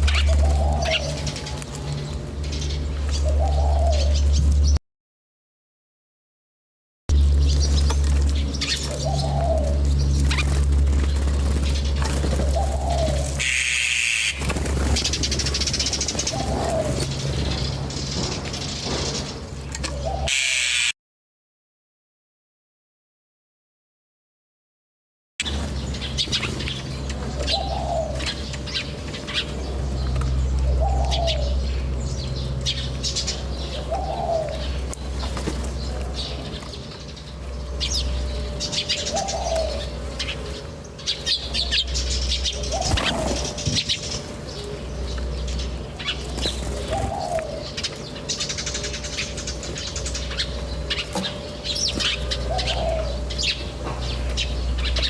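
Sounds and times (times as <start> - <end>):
small birds chirping: 0.0 - 4.8, 7.1 - 21.0, 25.4 - 55.0
steady low hum: 0.0 - 4.8, 7.1 - 20.9, 25.4 - 55.0
short lower bird call: 20.3 - 21.0.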